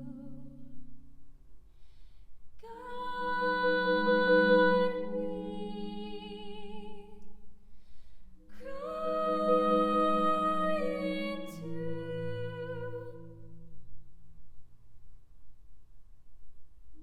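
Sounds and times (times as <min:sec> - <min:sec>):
person singing long notes: 0:02.6 - 0:07.2, 0:08.5 - 0:13.5.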